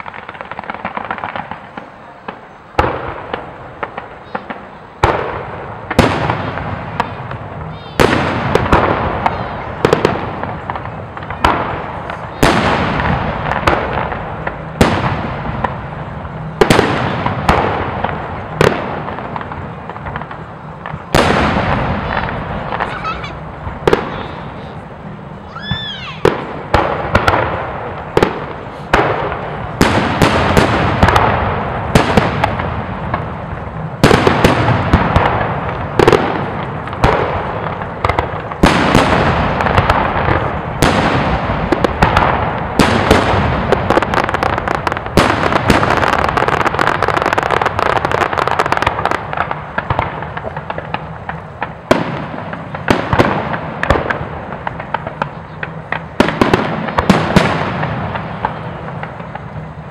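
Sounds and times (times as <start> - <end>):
echoing rumble: 0.0 - 47.0
firework crackle: 0.0 - 59.9
firework shells bursting with bangs: 0.0 - 59.9.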